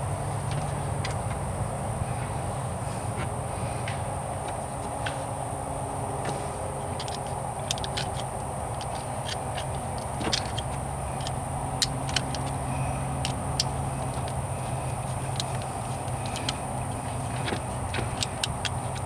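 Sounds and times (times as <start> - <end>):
steady low hum: 0.0 - 19.0
metallic clicks of hand tools: 7.0 - 19.0.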